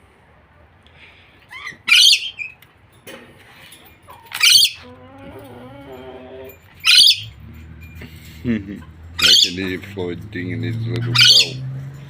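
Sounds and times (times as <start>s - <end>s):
bird squawking: 1.5s - 2.6s, 4.3s - 5.0s, 6.8s - 7.4s, 9.2s - 9.8s, 11.1s - 11.7s
bird chattering: 1.9s - 2.6s, 4.4s - 4.9s, 6.8s - 7.4s, 9.2s - 9.9s, 11.1s - 11.6s.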